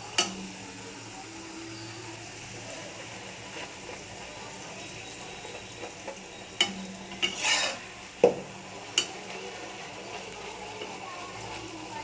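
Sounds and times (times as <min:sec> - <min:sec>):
faint frying sizzle: 0:00.0 - 0:12.0
metal utensil scraping frying pan: 0:04.7 - 0:11.7
utensil knocking against pan: 0:08.2 - 0:09.1.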